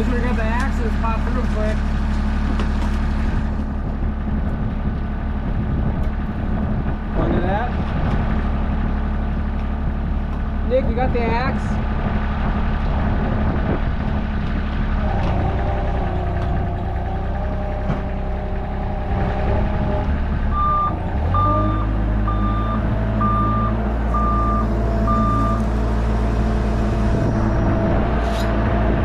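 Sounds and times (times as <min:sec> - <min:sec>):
excavator diesel engine running: 0:00.0 - 0:29.0
backup alarm beeping: 0:20.5 - 0:25.6.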